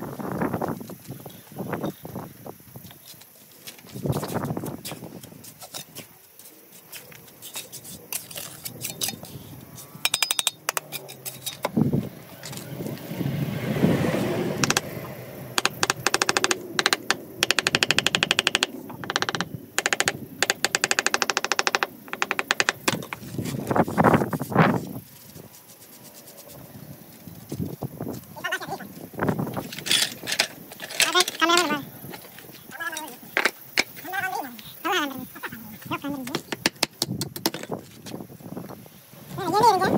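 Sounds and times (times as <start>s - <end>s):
mechanical knocking: 14.6s - 14.9s, 15.6s - 23.2s.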